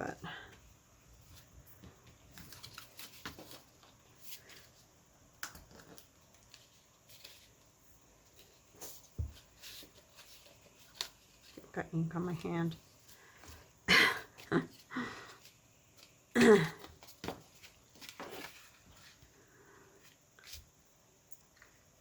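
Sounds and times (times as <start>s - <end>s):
paper rustling and tapping: 1.8s - 4.6s, 8.3s - 11.7s, 16.8s - 19.1s.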